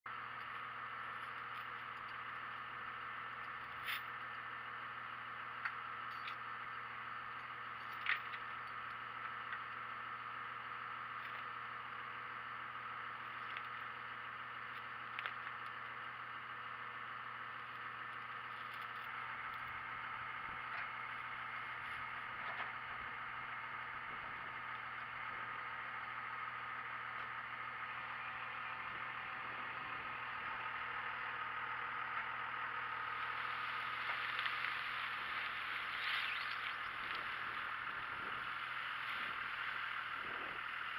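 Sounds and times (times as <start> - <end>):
low steady hum: 0.1 - 40.9
welding arc sizzling and crackling: 32.8 - 40.9.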